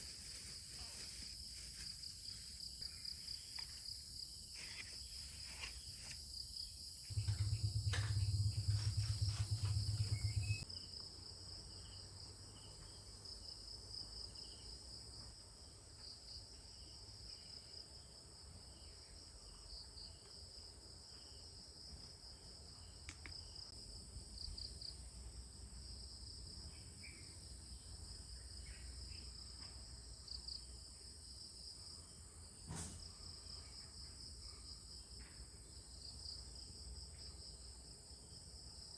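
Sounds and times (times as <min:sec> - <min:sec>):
crickets and insects chirping: 0:00.0 - 0:38.9
low rumble: 0:07.1 - 0:10.6
brief knock: 0:32.7 - 0:33.0.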